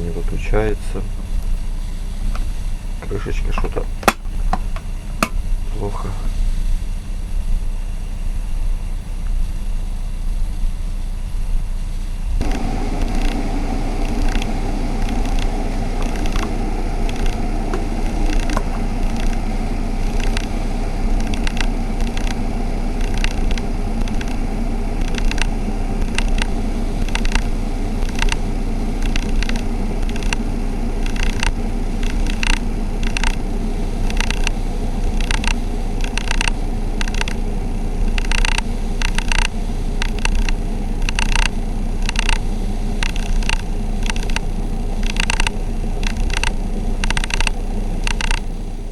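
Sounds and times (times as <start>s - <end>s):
electric kettle hum: 0.0s - 48.9s
water heating with crackling ticks: 12.4s - 48.9s.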